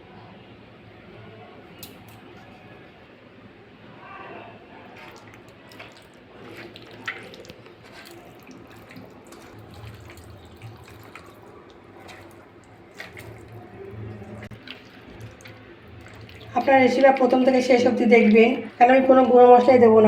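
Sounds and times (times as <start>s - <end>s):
wet squelching of meat mixed by hand: 4.9s - 19.3s.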